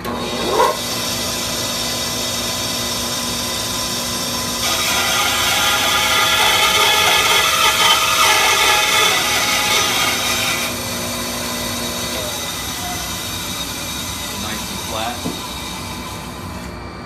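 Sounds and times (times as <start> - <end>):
bandsaw running: 0.0 - 16.7
bandsaw blade cutting wood: 0.1 - 3.0, 4.6 - 11.0.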